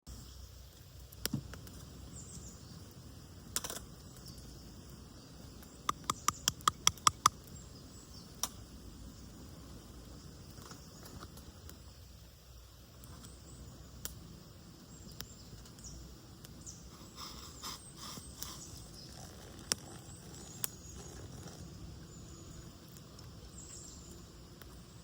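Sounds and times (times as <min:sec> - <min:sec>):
faint outdoor background: 0:00.0 - 0:25.0
sharp ringing clicks: 0:05.9 - 0:07.3.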